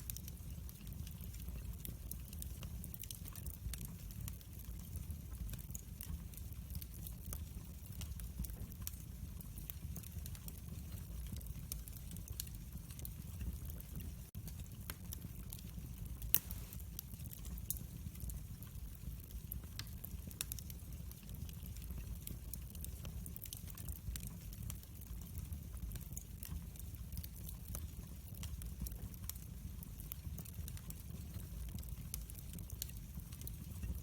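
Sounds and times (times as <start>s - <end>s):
wood fire crackling: 0.0s - 34.0s
sharp pops of fire: 16.2s - 17.1s.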